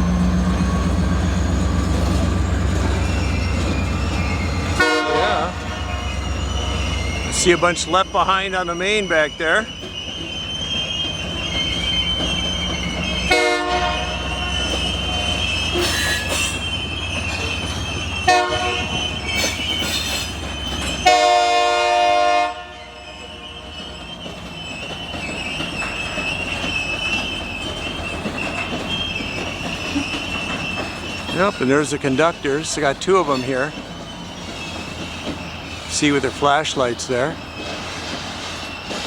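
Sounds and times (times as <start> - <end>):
diesel locomotive engine rumble: 0.0 - 39.0
locomotive wheels squealing on rail: 0.0 - 39.0
train horn blasts: 4.8 - 6.1, 13.2 - 16.3, 18.2 - 19.0, 21.0 - 23.7.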